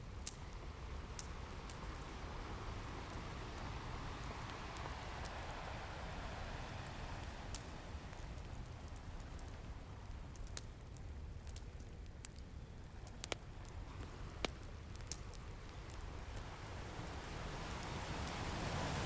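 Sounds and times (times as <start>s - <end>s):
wood fire crackling: 0.0s - 19.0s
ocean surf rumbling: 2.1s - 8.6s, 16.0s - 19.0s.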